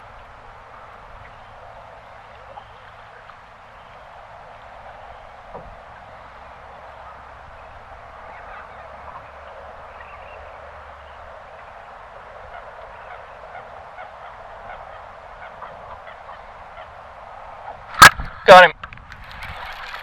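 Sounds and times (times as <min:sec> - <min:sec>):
outdoor background noise: 0:00.0 - 0:20.0
flock of birds calling: 0:05.9 - 0:17.0.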